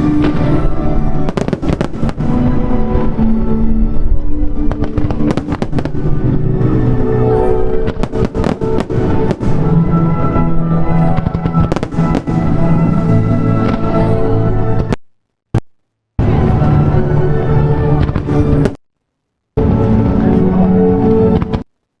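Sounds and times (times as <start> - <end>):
fireworks bangs and crackles: 0.0 - 7.1, 7.7 - 14.1, 17.9 - 18.8, 21.2 - 21.7
loud music: 0.0 - 14.9, 16.2 - 18.7.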